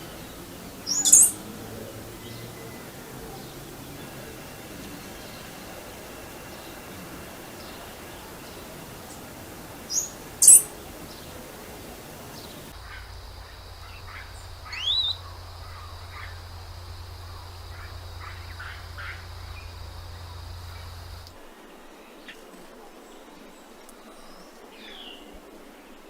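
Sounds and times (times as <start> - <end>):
birds calling: 0.0 - 21.4.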